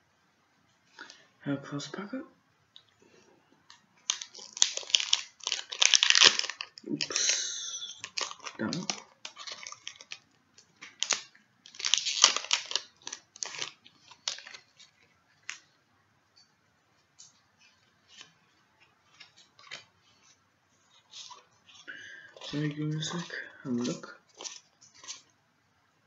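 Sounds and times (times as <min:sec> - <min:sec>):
foil wrapper crinkling: 0:03.7 - 0:15.8, 0:17.0 - 0:25.4.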